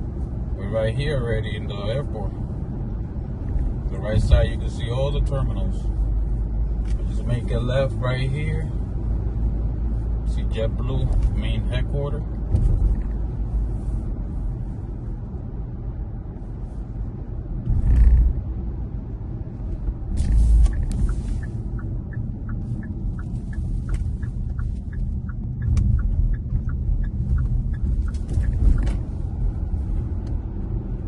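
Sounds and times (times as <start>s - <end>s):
car cabin road noise: 0.0s - 31.0s
turn signal ticking: 17.5s - 31.0s.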